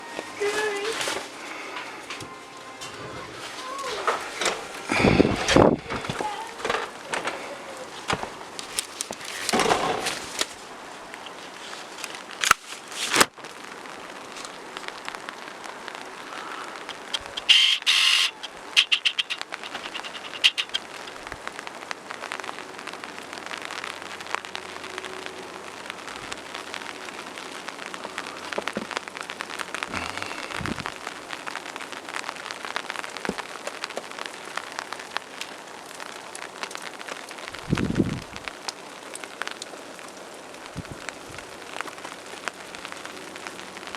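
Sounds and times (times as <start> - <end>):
rain falling: 0.0 - 43.9
raindrops ticking on surfaces: 0.0 - 43.9
loud burst of noise: 17.4 - 20.9.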